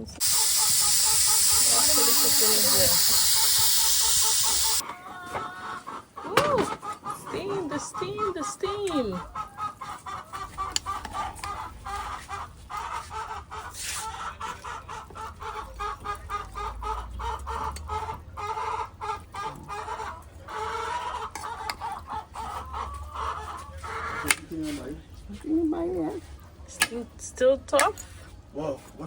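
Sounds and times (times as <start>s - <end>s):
chickens clucking: 0.0s - 29.0s
fast ticking rattle: 0.2s - 4.8s.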